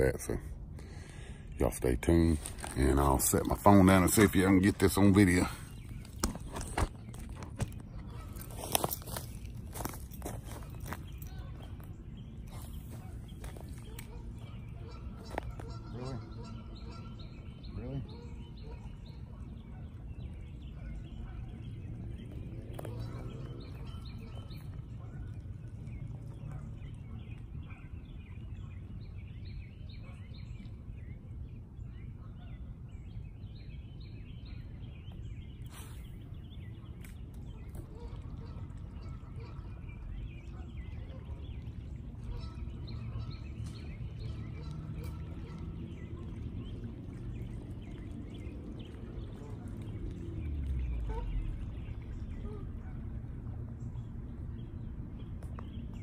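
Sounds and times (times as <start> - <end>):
small birds chirping: 0.0 - 56.0
low steady rumble: 30.5 - 56.0.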